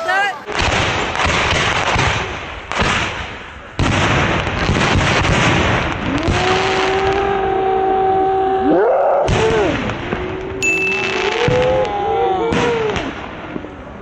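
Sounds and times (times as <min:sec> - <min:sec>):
steady pitched tone: 0:10.6 - 0:11.7
fireworks shells bursting: 0:10.6 - 0:11.9.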